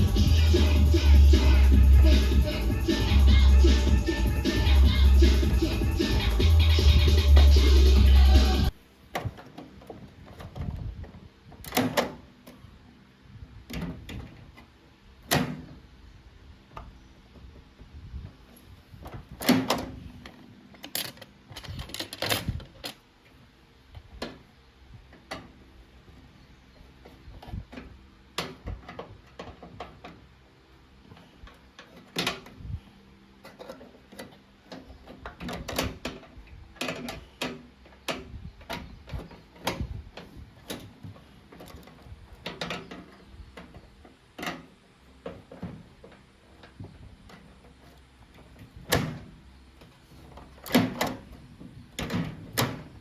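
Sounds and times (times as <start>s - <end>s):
clicks and rattles of microwave parts: 33.4s - 49.3s.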